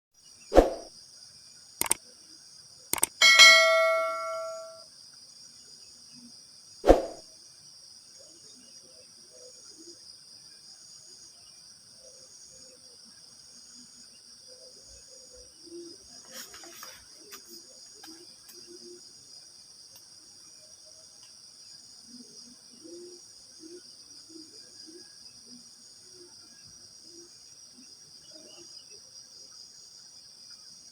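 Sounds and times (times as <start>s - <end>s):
crickets chirping: 0.2s - 30.9s
metallic ring: 3.0s - 4.8s
sharp knock: 3.0s - 4.8s.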